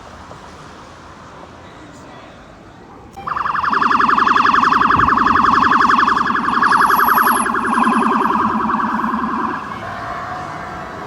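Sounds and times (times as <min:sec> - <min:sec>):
fire truck siren warbling: 0:03.2 - 0:11.0.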